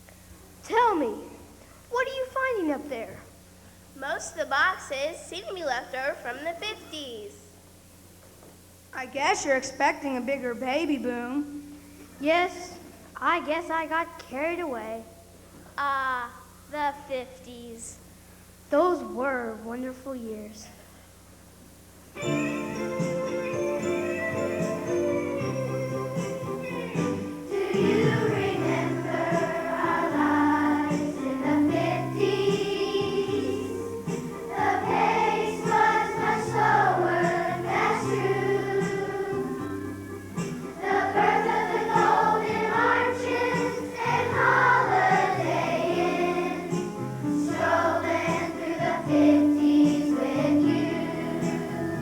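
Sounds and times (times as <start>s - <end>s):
instrumental accompaniment with bass: 22.2s - 52.0s
children's choir singing: 22.4s - 40.0s, 40.7s - 52.0s.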